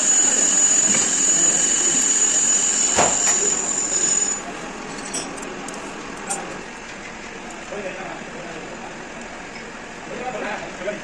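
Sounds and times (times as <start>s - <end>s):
high-pitched squeal: 0.0s - 4.5s
metal lathe cutting steel: 0.0s - 4.5s.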